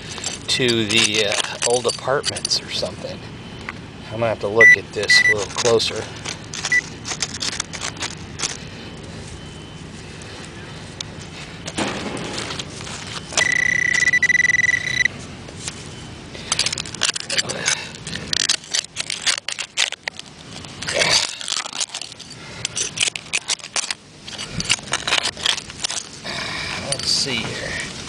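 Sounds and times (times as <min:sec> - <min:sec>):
digging tool scraping gravel: 0:00.0 - 0:02.9, 0:05.1 - 0:08.6
metal detector tone: 0:04.6 - 0:05.9, 0:13.1 - 0:15.1.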